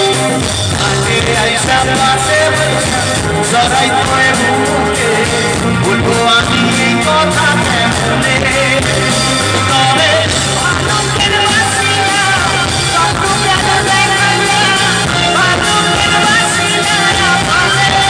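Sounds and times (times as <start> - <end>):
live band playing love song: 0.0 - 18.0
person singing: 0.0 - 18.0.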